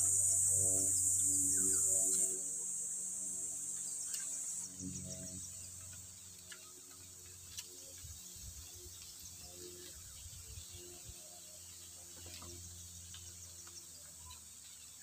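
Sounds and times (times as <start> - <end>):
high-pitched insect buzzing: 0.0 - 6.6
faint ticks: 3.8 - 10.0, 11.8 - 15.0.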